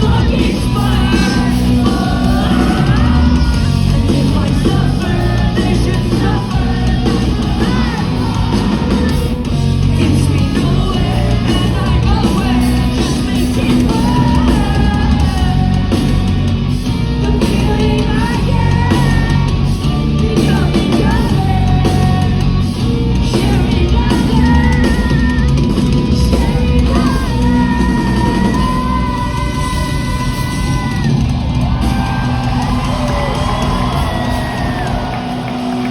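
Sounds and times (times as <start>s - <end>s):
live rock band: 0.0s - 35.9s.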